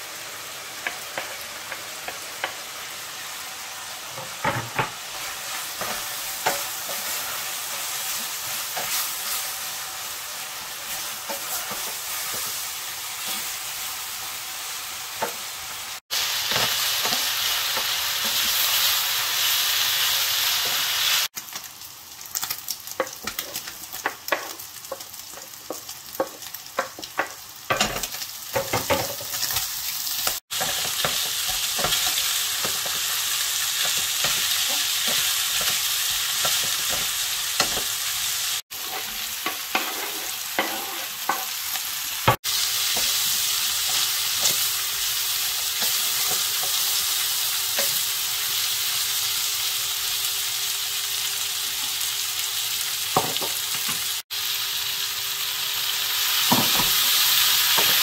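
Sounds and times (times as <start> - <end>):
food sizzling in a frying pan: 0.0 - 58.0
spatula scraping a pan: 10.8 - 13.8, 38.7 - 41.6.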